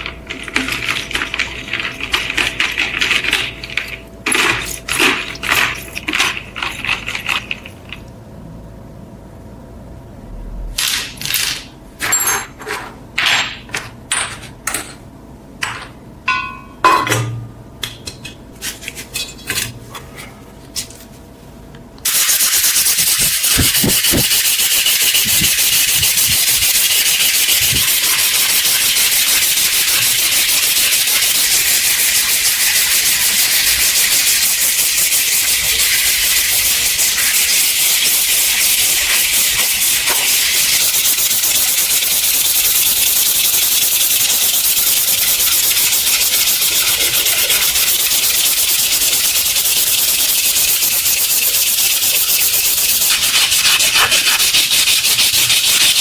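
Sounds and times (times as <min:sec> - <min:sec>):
sanding hiss: 0:22.1 - 0:56.0
tools knocking and scraping: 0:23.0 - 0:28.7.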